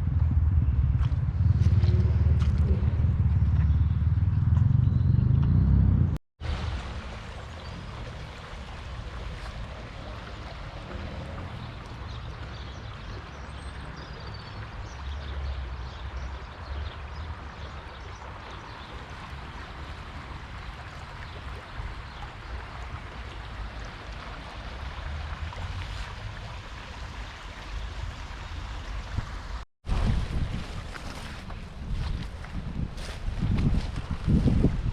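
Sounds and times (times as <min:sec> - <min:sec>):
wind buffeting microphone: 0:00.0 - 0:16.2, 0:27.8 - 0:34.9
rushing flood water: 0:06.4 - 0:32.4.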